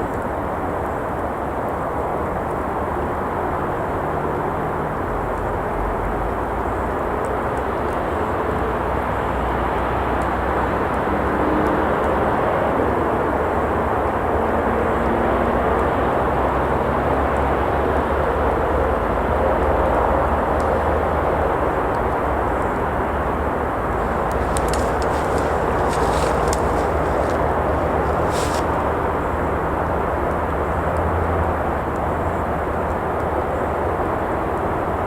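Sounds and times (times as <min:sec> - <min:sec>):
traffic rumble: 0:18.9 - 0:31.6
faint campfire crackles: 0:22.7 - 0:29.9.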